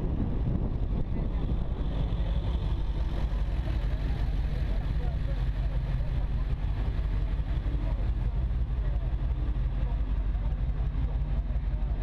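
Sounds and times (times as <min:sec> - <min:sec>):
car engine running low: 0:00.0 - 0:12.0.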